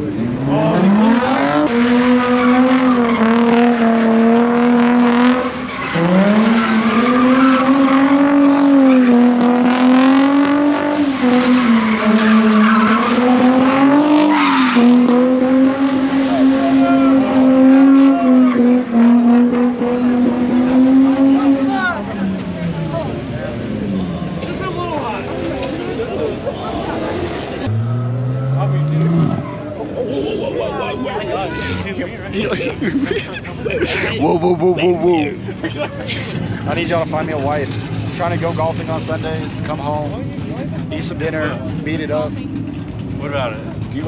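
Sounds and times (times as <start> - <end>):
car engine revving: 0.0 - 44.0
tyres squealing: 11.0 - 15.4, 28.3 - 36.4.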